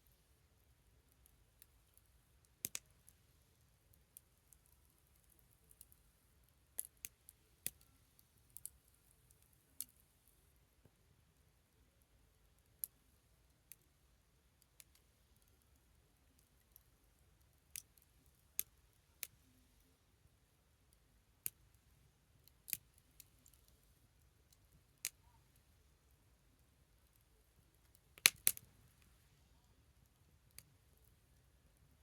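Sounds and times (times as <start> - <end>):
wood fire crackling: 0.6 - 9.9, 26.6 - 29.2, 29.8 - 32.0.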